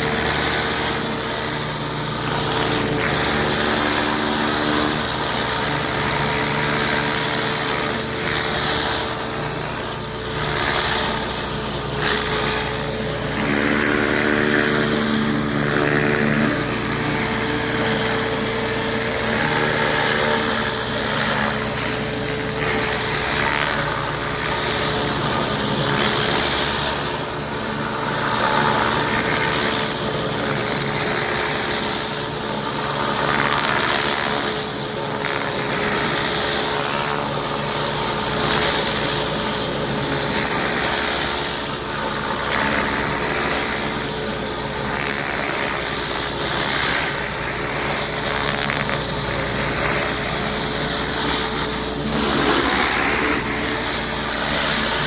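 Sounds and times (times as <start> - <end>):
pressure washer engine running: 0.0 - 55.0.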